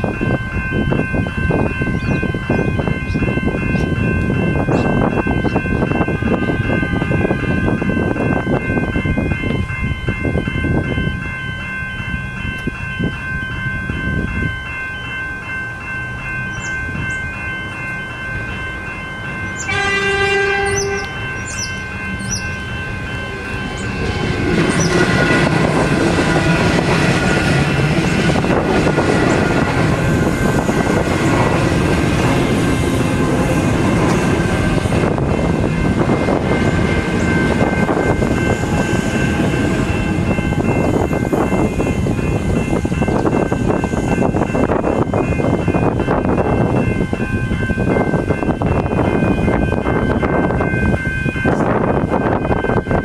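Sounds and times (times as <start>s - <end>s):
level crossing bells ringing: 0.0s - 53.0s
train wheels rolling: 14.6s - 53.0s
train horn: 19.5s - 22.4s.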